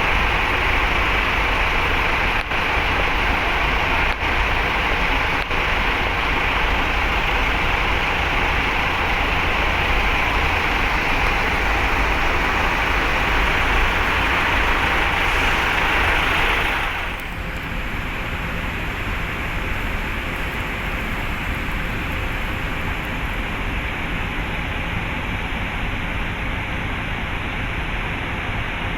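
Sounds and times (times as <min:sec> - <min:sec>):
heavy truck engines rumbling: 0:00.0 - 0:28.9.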